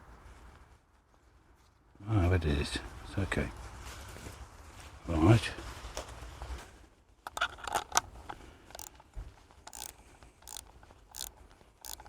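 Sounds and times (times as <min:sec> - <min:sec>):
short sharp clicks and scrapes: 0:07.3 - 0:12.0.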